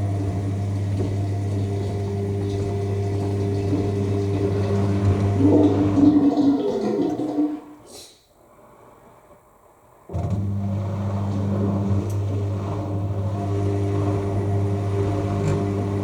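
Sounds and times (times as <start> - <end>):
washing machine drain pump humming: 0.0 - 7.8, 10.0 - 16.0.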